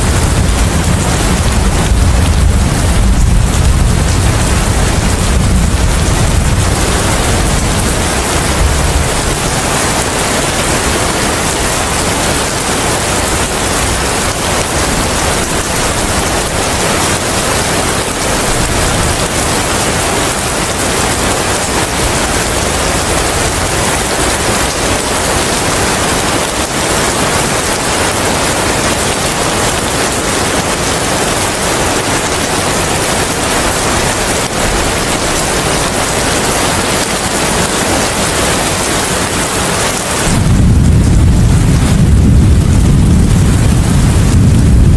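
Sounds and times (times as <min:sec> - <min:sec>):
low rumble: 0:00.0 - 0:09.7, 0:40.3 - 0:44.9
rain with wind: 0:00.0 - 0:44.9.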